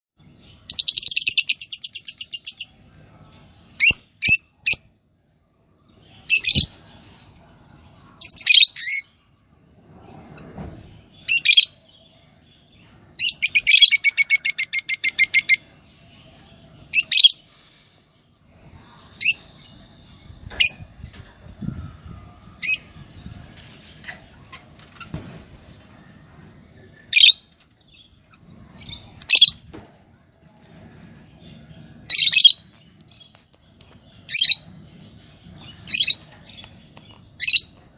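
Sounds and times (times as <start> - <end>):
lovebirds chirping: 30.5 - 37.9.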